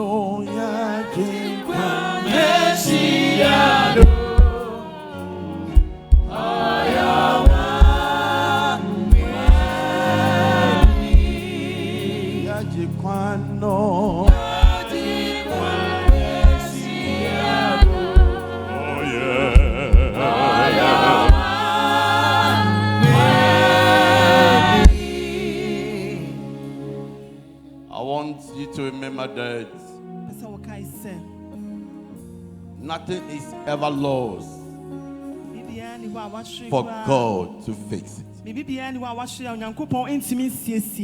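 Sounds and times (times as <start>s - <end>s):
group singing gospel song: 0.0s - 29.8s
band playing: 1.7s - 27.3s
low drum beats: 4.0s - 4.7s, 5.8s - 6.4s, 7.4s - 8.2s, 9.0s - 9.9s, 10.8s - 11.6s, 14.1s - 15.0s, 16.1s - 16.7s, 17.8s - 18.4s, 19.6s - 20.3s, 21.2s - 21.6s, 24.8s - 25.3s
low drum hits: 9.1s - 9.8s, 14.1s - 14.9s.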